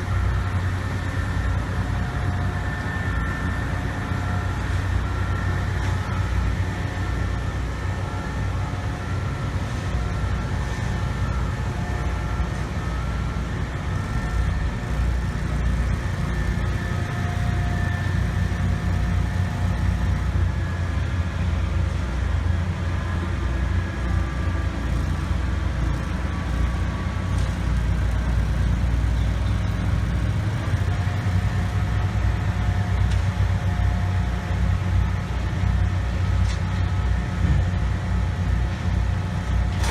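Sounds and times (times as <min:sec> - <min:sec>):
faint whining tones: 0:00.0 - 0:21.8
heavy engines rumbling: 0:00.0 - 0:39.9.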